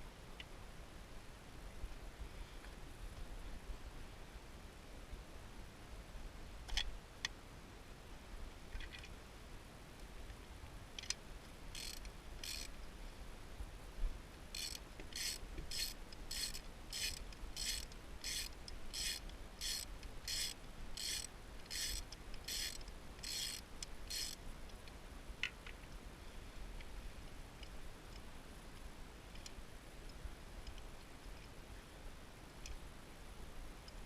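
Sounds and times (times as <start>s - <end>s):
ratchet wrench rasping: 11.7s - 12.7s, 14.6s - 24.4s.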